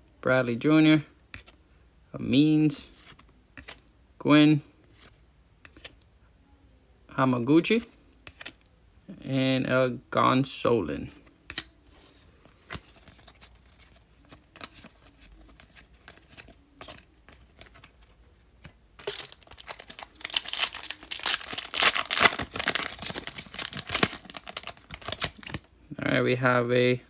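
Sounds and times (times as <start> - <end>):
card pack wrapper tearing: 19.0 - 25.7.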